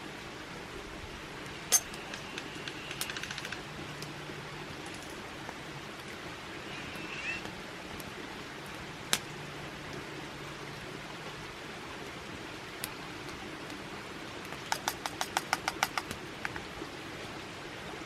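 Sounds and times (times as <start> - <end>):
outdoor background hiss: 0.0 - 18.0
sharp clicks: 1.7 - 4.1.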